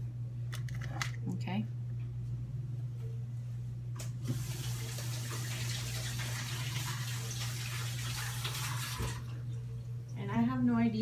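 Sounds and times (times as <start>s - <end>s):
steady low hum: 0.0s - 7.4s, 9.2s - 11.0s
tap running water: 4.2s - 9.4s.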